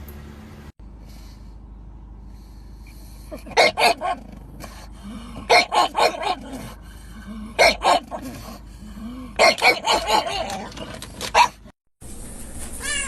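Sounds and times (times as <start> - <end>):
dog barking: 3.4 - 4.3, 5.5 - 6.6, 7.6 - 8.2, 9.4 - 10.7, 11.3 - 11.6.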